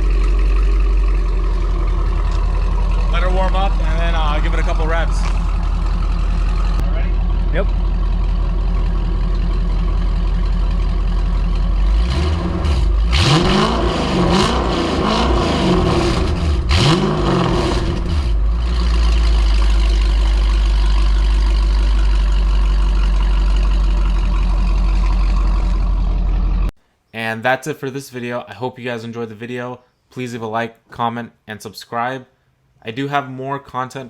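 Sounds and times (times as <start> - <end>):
car engine idling and revving: 0.0 - 26.7.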